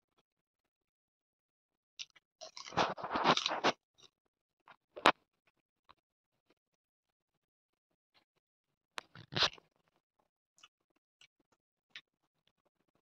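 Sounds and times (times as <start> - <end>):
crunchy chewing: 2.0 - 3.8, 9.0 - 9.6.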